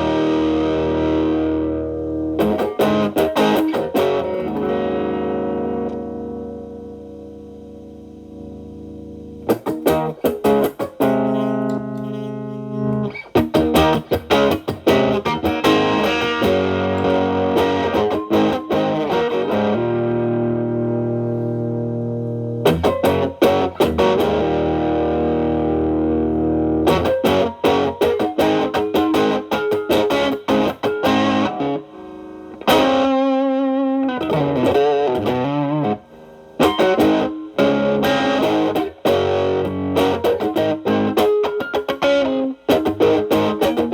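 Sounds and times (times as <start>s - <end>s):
distorted electric guitar: 0.0s - 43.9s.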